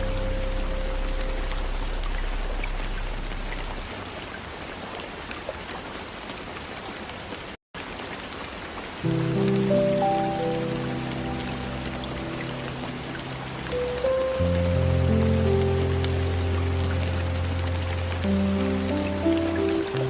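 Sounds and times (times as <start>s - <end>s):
low sustained ambient music: 0.0s - 3.9s, 9.1s - 20.0s
rain on a window: 0.0s - 20.0s.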